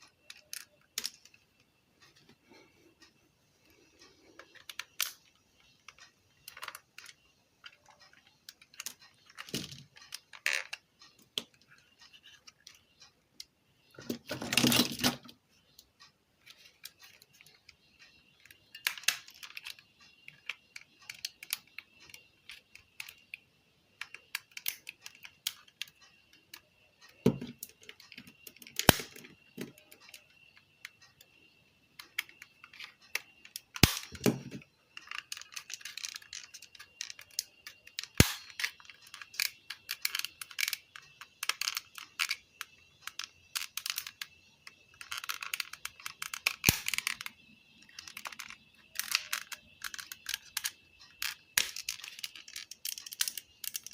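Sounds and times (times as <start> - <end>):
plastic and metal parts clicking: 0.0 - 2.2, 4.0 - 15.8, 16.4 - 23.4, 24.0 - 53.9.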